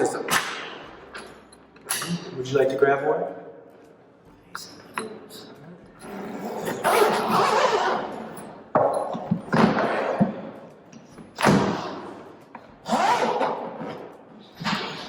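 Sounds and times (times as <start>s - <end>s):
suitcase rustling and scraping: 6.0s - 10.5s.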